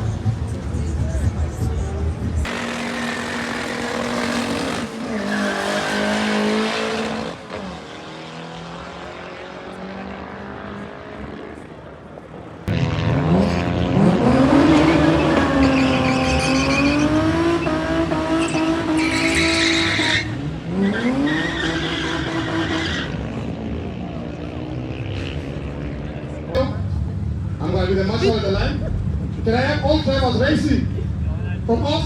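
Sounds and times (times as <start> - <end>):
car engine revving hard: 2.5 - 11.2, 12.7 - 23.7
tyres squealing: 14.6 - 23.1.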